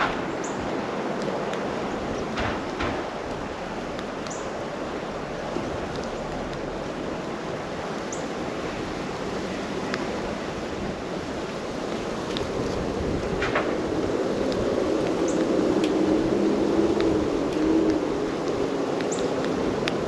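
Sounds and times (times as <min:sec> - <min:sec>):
outdoor rushing noise: 0:00.0 - 0:07.8.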